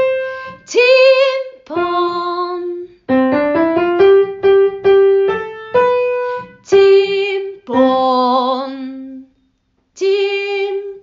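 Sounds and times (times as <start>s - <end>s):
woman singing: 0.5s - 3.0s, 6.6s - 9.3s, 10.0s - 11.0s
keyboard notes: 3.1s - 6.6s.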